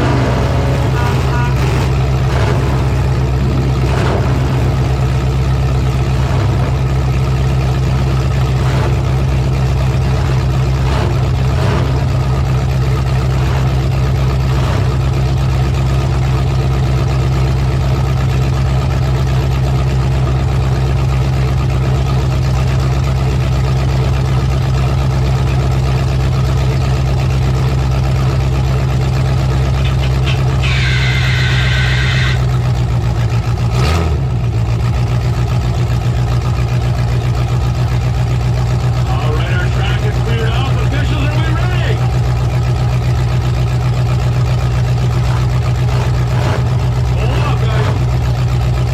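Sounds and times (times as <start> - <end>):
loud truck engine running: 0.0 - 48.9
high squeal: 29.8 - 32.5.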